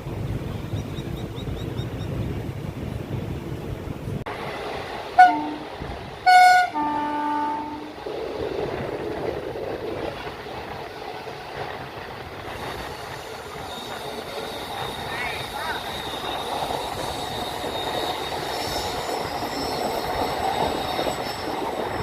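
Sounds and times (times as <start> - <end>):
train rumbling: 0.0 - 22.0
train horn: 5.2 - 8.0.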